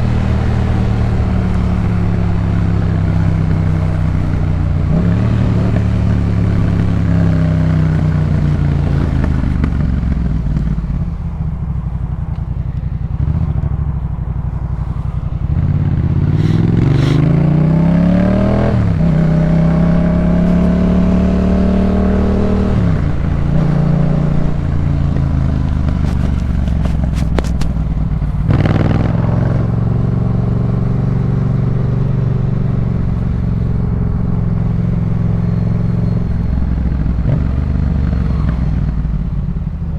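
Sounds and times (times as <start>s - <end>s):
exhaust cracks: 0.0s - 17.6s, 22.8s - 30.1s
motorcycle engine under load: 0.0s - 39.9s.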